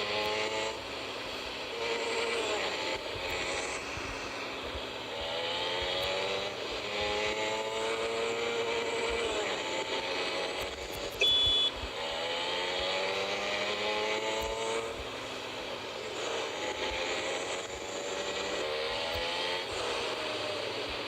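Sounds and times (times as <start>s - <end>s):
motorcycle engine running: 0.0s - 21.0s
wind and road noise: 0.0s - 21.0s
short high beep: 11.2s - 11.8s.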